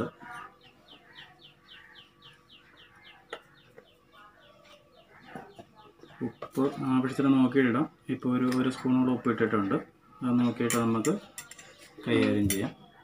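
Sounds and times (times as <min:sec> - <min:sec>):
rapid high bird chirps: 0:00.0 - 0:06.5.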